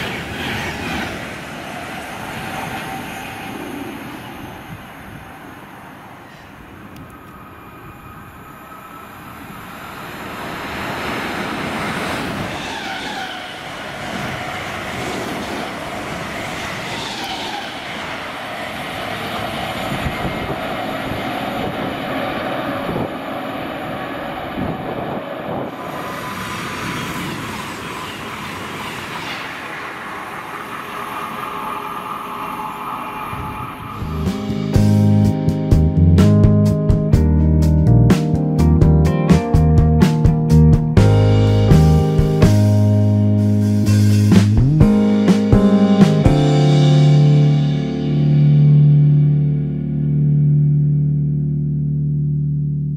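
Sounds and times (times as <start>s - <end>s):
train passing: 0.0s - 50.2s
high wheel squeal: 1.7s - 10.2s, 12.3s - 14.8s, 16.4s - 18.4s, 25.8s - 34.3s
rail joint clicks: 6.2s - 7.5s.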